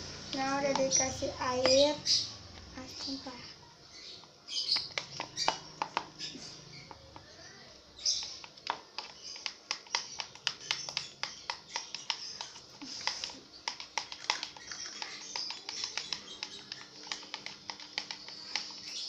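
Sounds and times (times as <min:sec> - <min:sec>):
utensil clicking against container: 0:08.1 - 0:19.0.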